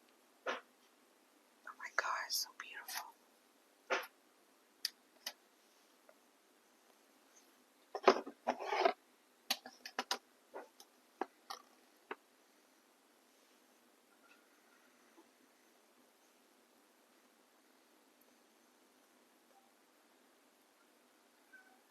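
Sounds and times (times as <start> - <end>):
small clicks and taps: 9.5 - 12.2.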